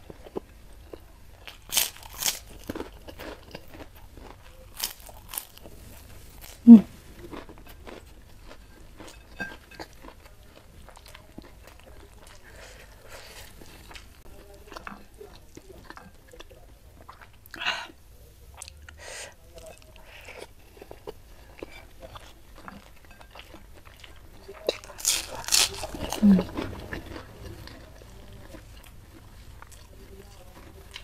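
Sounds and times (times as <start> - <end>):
food crunching: 0.0 - 17.6, 18.5 - 31.0
person chewing and mouth sounds: 0.0 - 31.0.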